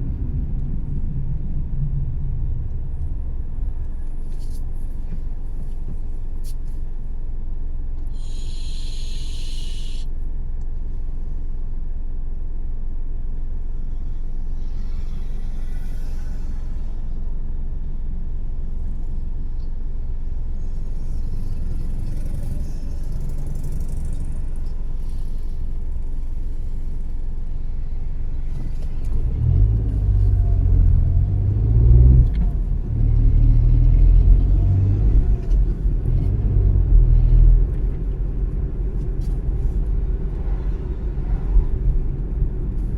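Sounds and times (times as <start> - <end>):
car tyres and engine rumbling: 0.0 - 42.9
short hiss: 8.2 - 10.0.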